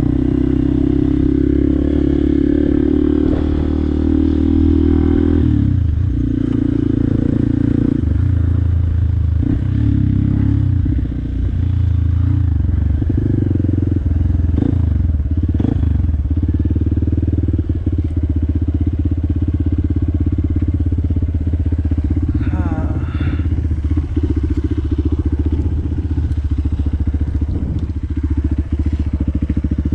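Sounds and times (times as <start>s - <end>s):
motorcycle engine running: 0.0s - 29.9s.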